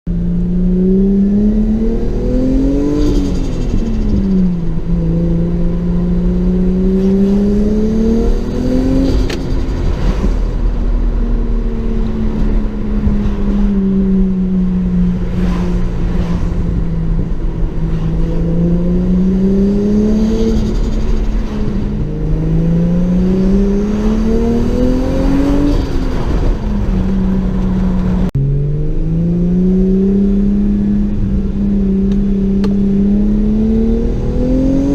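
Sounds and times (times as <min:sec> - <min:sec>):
car engine accelerating: 0:00.1 - 0:34.9.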